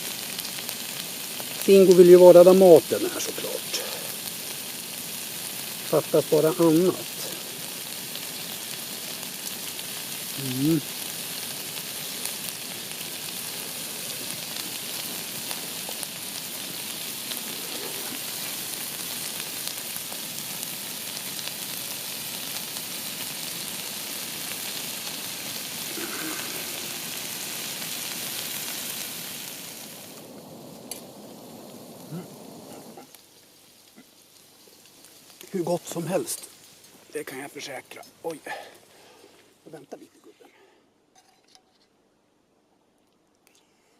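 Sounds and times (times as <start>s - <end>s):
food sizzling in a frying pan: 0.0s - 39.8s
short vocal sound: 25.9s - 27.0s, 32.1s - 33.1s.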